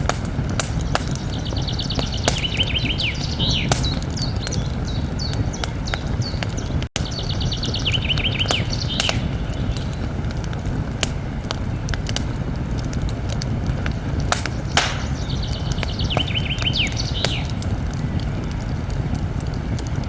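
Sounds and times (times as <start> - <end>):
campfire crackling and popping: 0.0 - 20.0
songbird singing with trill: 0.7 - 10.2, 14.4 - 17.6.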